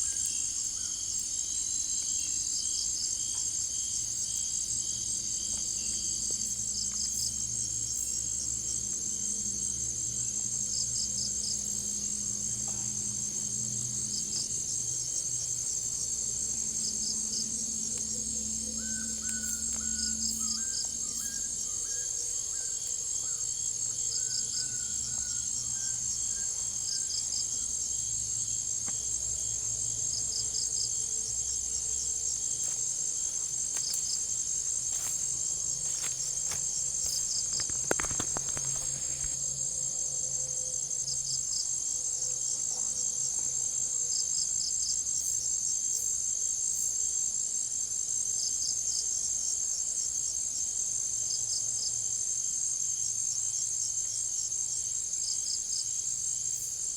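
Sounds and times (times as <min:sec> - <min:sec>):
crickets trilling: 0:00.0 - 0:56.9
insect chirps: 0:00.0 - 0:56.9.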